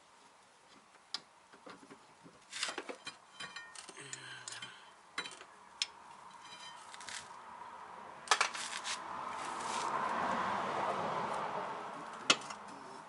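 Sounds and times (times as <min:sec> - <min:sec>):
metal tools clinking: 0:02.6 - 0:05.5.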